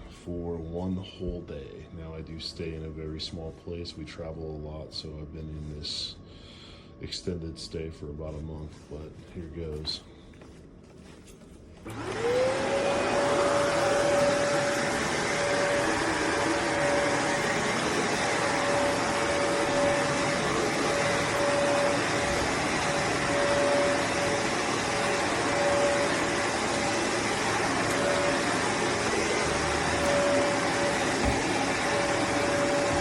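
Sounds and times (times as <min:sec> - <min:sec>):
vacuum cleaner running: 0:11.8 - 0:33.0.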